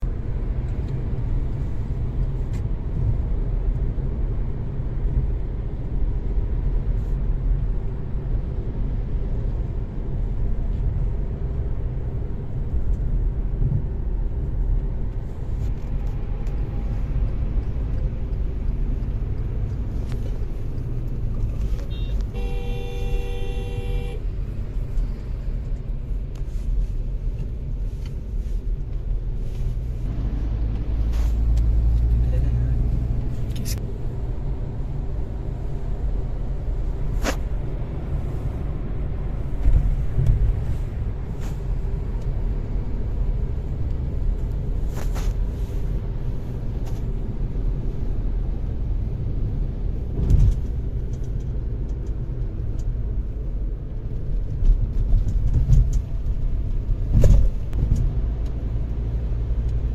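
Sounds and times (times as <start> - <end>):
car engine and road noise: 0.0 - 59.9
vehicle horn: 21.8 - 24.2.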